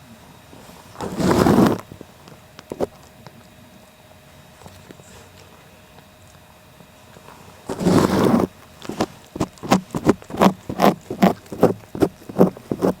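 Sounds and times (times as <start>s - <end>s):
loud rasping rub: 0.8s - 1.9s, 7.4s - 13.0s
cat licking: 8.2s - 13.0s.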